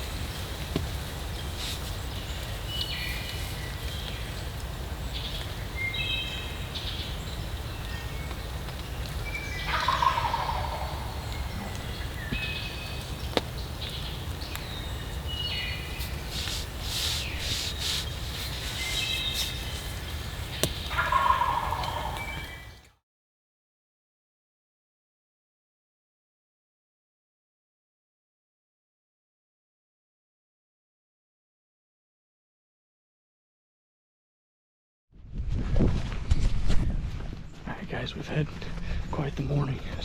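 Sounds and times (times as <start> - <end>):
high bird calls: 1.4 - 22.9
turkey gobbling: 9.6 - 11.7, 20.9 - 22.8.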